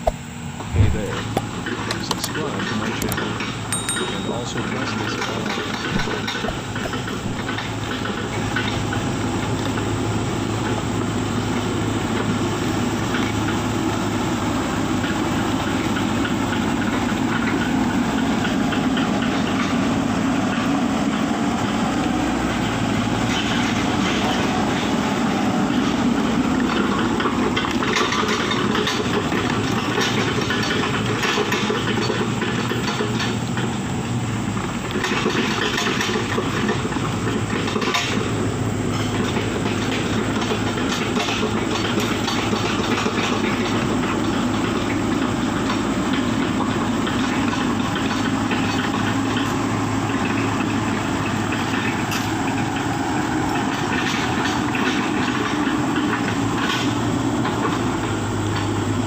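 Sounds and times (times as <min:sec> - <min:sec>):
rattles and clanks: 0:00.0 - 0:09.9, 0:26.6 - 0:58.9
heavy diesel engine running: 0:00.0 - 0:59.0.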